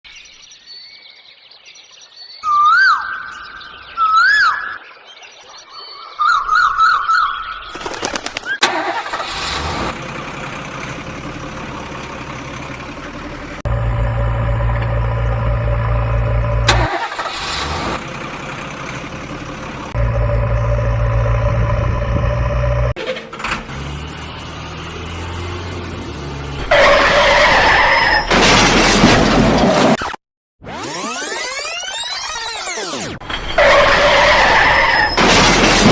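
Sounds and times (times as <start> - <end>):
heavy diesel engine rumbling: 8.6 - 29.6, 33.2 - 35.9.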